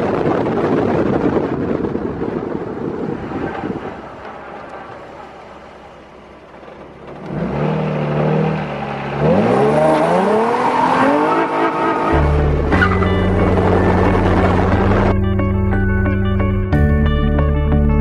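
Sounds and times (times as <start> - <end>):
car engine revving: 1.9 - 15.2
low music tones: 11.8 - 18.0.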